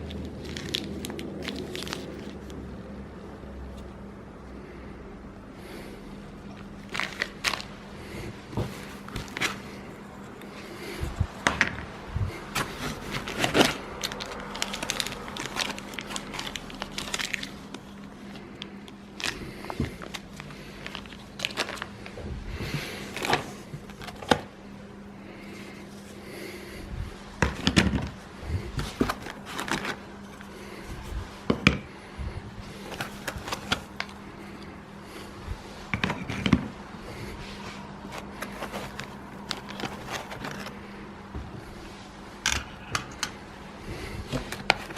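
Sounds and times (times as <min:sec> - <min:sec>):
plastic bags crinkling: 0:00.0 - 0:02.6, 0:06.5 - 0:07.9, 0:08.6 - 0:24.5, 0:28.5 - 0:31.1, 0:32.7 - 0:34.6, 0:37.9 - 0:41.0
faint steady hum: 0:00.0 - 0:44.9
clicks and knocks of parts: 0:42.4 - 0:43.4.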